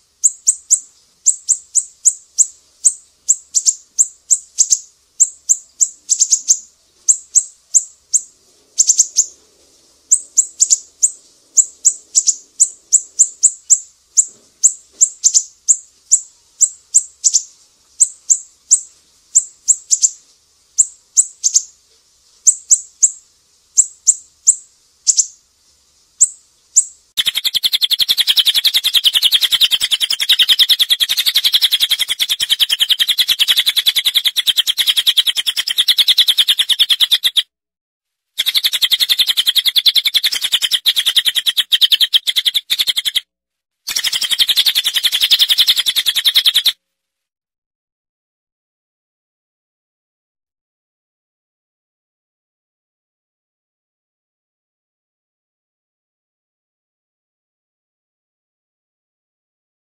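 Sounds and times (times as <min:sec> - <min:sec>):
rapid bird trill: 0:00.0 - 0:09.4, 0:10.1 - 0:20.2, 0:20.8 - 0:21.7, 0:22.5 - 0:23.2, 0:23.8 - 0:25.4, 0:26.2 - 0:37.5, 0:38.4 - 0:43.3, 0:43.9 - 0:46.8
songbird chirps: 0:00.0 - 0:37.4, 0:38.4 - 0:43.3, 0:43.9 - 0:46.8.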